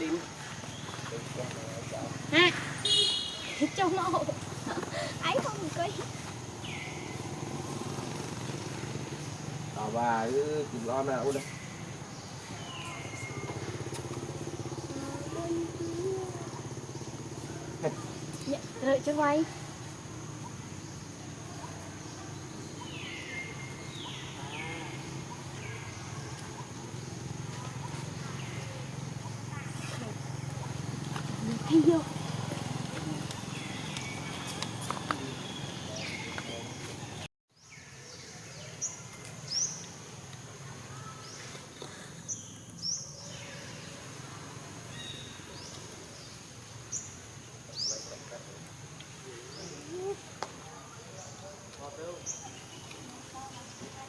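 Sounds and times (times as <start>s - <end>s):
high insect drone: 0.0s - 37.2s
steady outdoor hum: 0.0s - 54.0s.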